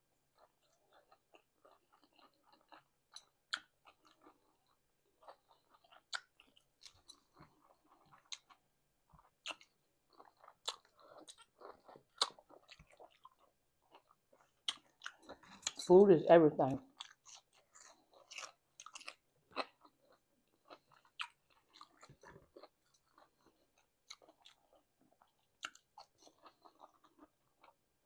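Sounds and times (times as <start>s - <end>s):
person chewing food: 0.1s - 15.9s, 16.9s - 28.0s
mouth clicks and smacks: 5.8s - 7.1s, 14.5s - 15.9s.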